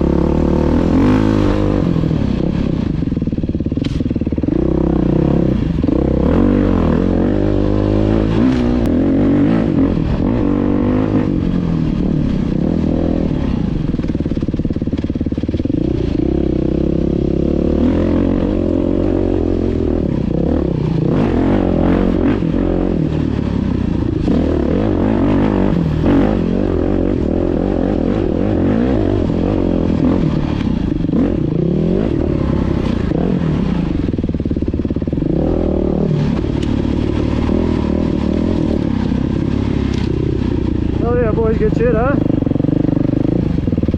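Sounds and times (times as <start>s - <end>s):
dirt bike engine revving: 0.0s - 43.9s
bike rattling over rough ground: 13.8s - 21.0s.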